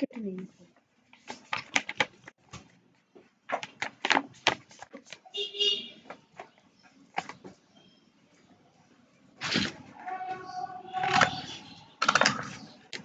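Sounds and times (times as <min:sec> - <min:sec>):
sharp paper crinkles and clicks: 0:01.1 - 0:02.8, 0:03.5 - 0:05.4, 0:10.9 - 0:13.0.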